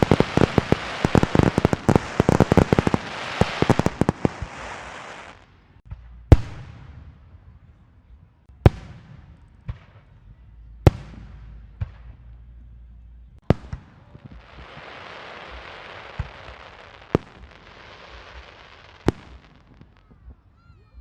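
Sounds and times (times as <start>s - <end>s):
firework hiss: 0.0s - 5.5s, 14.2s - 20.0s
firework bangs: 0.0s - 7.2s, 13.4s - 20.3s.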